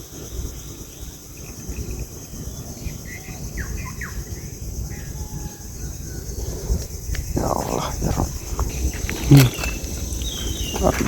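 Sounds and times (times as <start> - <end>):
insect buzz: 0.0 - 11.0
bird chirps: 7.4 - 11.0.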